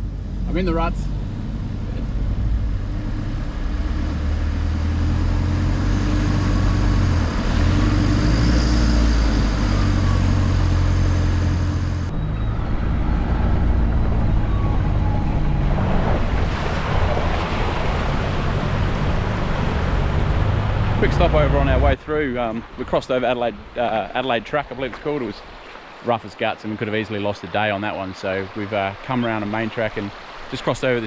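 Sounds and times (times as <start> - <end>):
vehicle engine running at low speed: 0.0 - 22.0
tyres rushing through water: 0.0 - 31.0.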